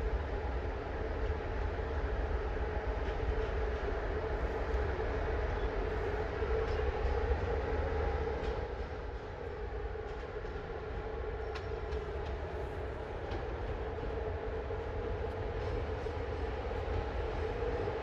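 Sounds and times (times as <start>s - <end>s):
electric locomotive humming: 0.0s - 18.0s.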